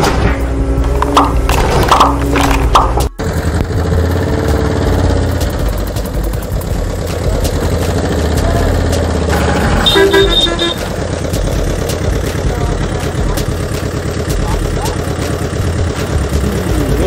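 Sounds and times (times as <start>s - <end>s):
truck engine running: 0.0s - 17.0s
short horn beeps: 9.7s - 10.9s.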